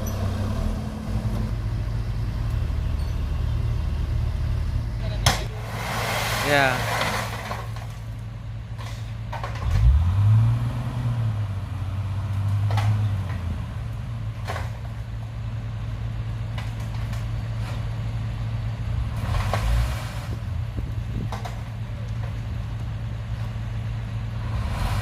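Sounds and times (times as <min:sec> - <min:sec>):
excavator diesel engine revving: 0:00.0 - 0:07.9, 0:09.5 - 0:14.8, 0:23.9 - 0:25.0.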